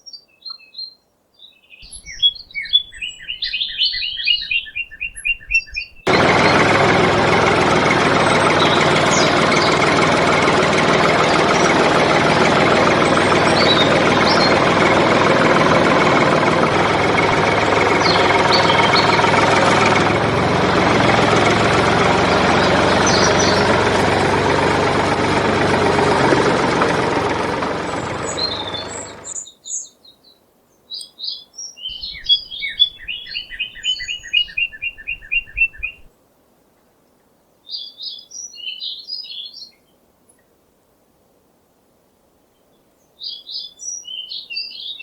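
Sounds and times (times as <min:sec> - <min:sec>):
birds chirping: 0:01.8 - 0:29.4, 0:31.9 - 0:36.1
small engine running: 0:06.1 - 0:29.4, 0:31.9 - 0:36.1.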